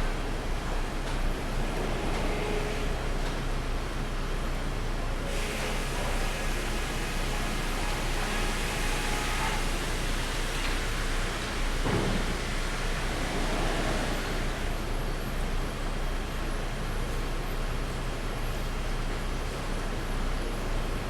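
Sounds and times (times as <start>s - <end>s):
sawmill machinery humming: 0.0s - 16.5s.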